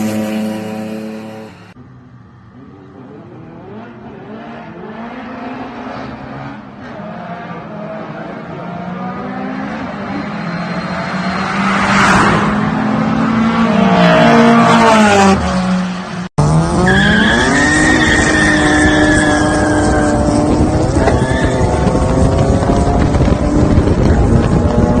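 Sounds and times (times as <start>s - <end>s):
race car engines accelerating: 2.1s - 25.0s.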